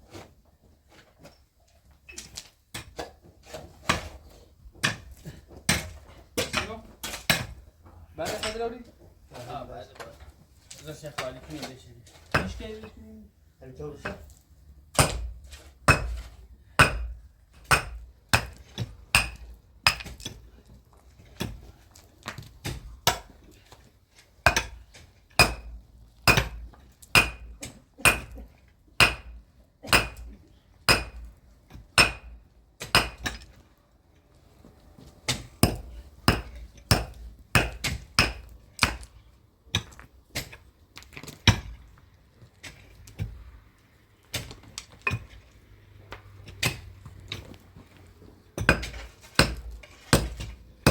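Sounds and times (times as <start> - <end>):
hammer striking steel chisel: 15.0 - 15.3, 15.9 - 20.3, 24.5 - 24.8, 25.4 - 28.4, 29.0 - 30.3, 30.9 - 33.5, 35.3 - 39.1, 48.6 - 50.9.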